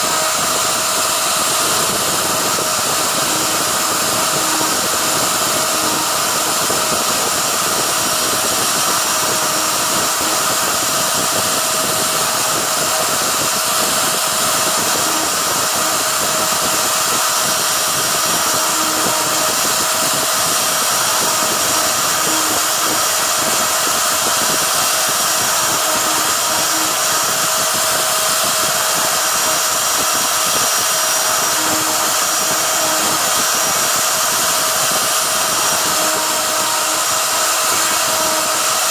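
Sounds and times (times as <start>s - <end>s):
router spindle whine: 0.0s - 38.9s
short low tones: 24.8s - 27.6s, 31.1s - 38.8s.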